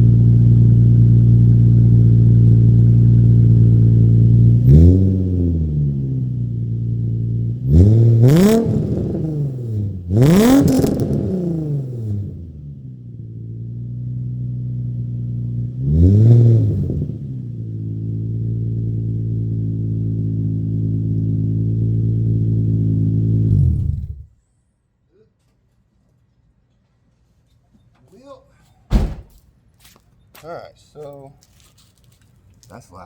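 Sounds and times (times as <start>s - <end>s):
car engine revving and idling: 0.0s - 24.3s.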